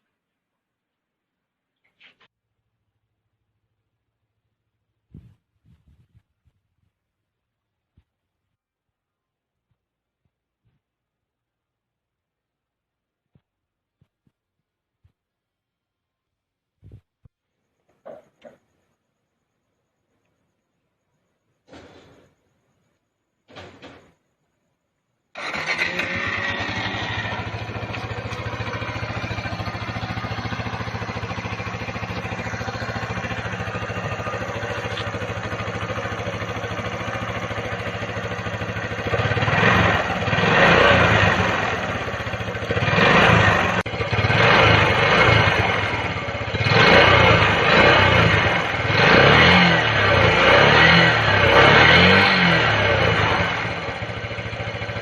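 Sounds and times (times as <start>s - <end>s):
engine revving in blips: 25.4s - 55.0s
motorcycle engine idling: 25.4s - 55.0s.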